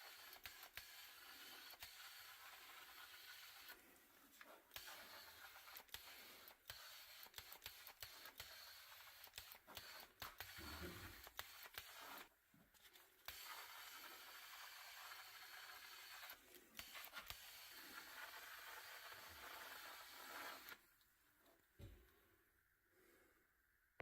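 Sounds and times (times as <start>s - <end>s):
small clicks and scrapes: 0.1s - 14.2s.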